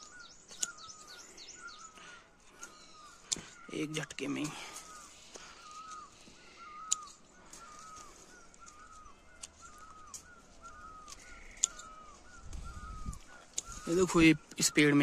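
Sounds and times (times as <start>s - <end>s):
pruning shears snipping stems: 0.4s - 1.0s, 6.8s - 12.6s, 13.2s - 14.6s.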